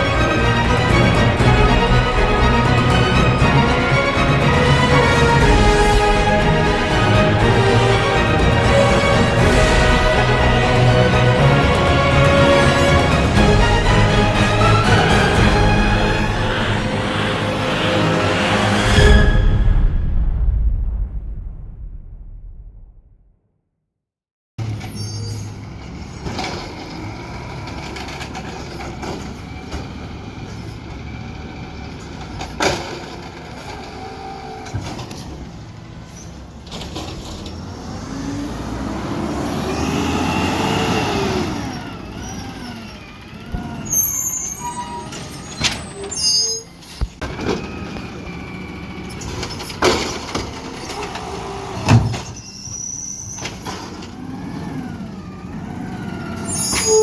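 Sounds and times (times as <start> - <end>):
garbage truck engine running: 0.0 - 19.4, 24.6 - 57.0
sharp bangs and knocks: 0.0 - 23.3.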